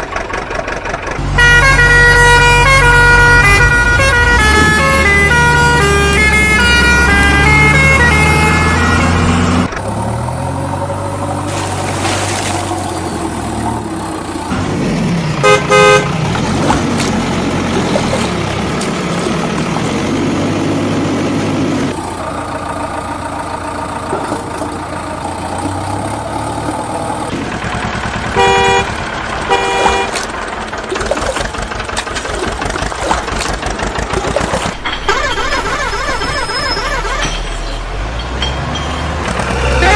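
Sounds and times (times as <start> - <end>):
heavy vehicle engines running: 0.0 - 39.9
horn honking: 1.2 - 9.7, 15.3 - 22.0, 28.2 - 32.4.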